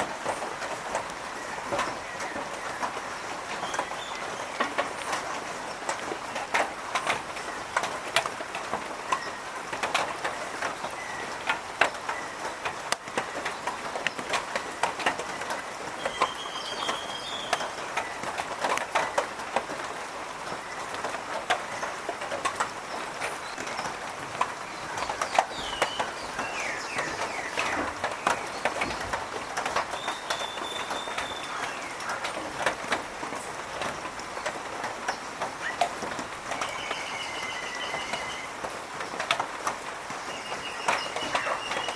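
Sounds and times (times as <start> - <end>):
birds whistling: 16.0 - 18.2, 25.0 - 29.1, 29.9 - 32.3, 36.5 - 38.5, 40.2 - 41.9
dense irregular clicking and tapping: 38.0 - 40.2.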